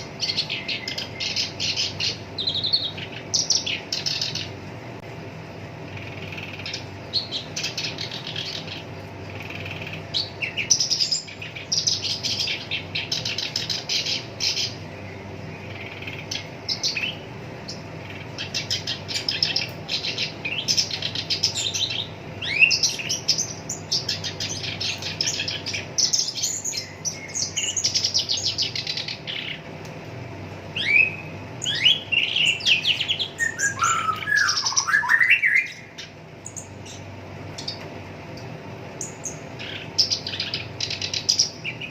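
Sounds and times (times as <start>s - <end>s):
reed warbler singing: 0.0s - 4.7s, 5.8s - 41.9s.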